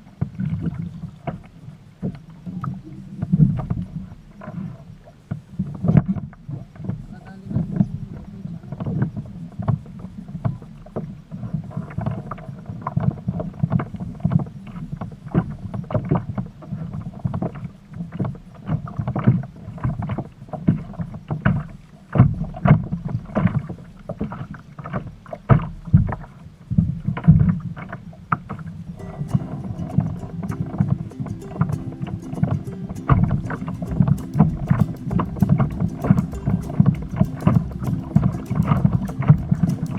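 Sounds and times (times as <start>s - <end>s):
low rumble: 29.0s - 39.9s.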